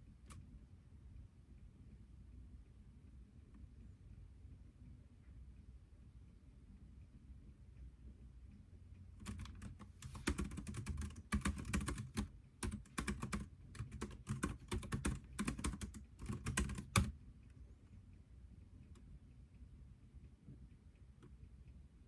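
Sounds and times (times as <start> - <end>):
computer keyboard typing: 9.2 - 17.2.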